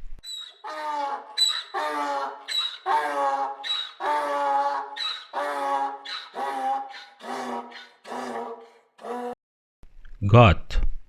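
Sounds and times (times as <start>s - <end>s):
donkey braying: 0.2s - 9.4s.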